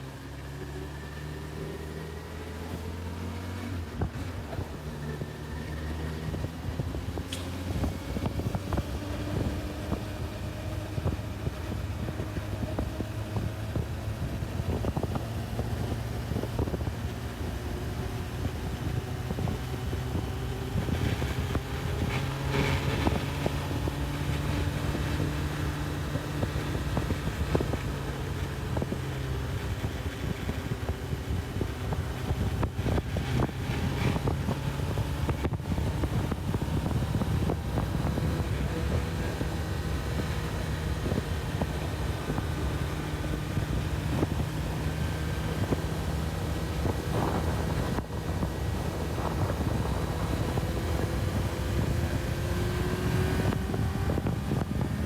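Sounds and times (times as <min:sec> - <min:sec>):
motorcycle engine revving: 0:00.0 - 0:55.0
wind on microphone: 0:02.7 - 0:55.0.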